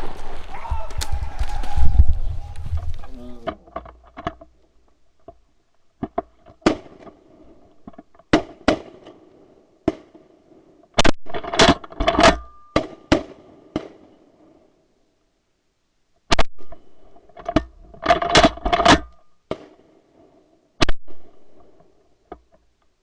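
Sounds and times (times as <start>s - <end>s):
sharp cracks and knocks: 6.0s - 7.2s, 7.8s - 14.2s, 16.3s - 22.8s.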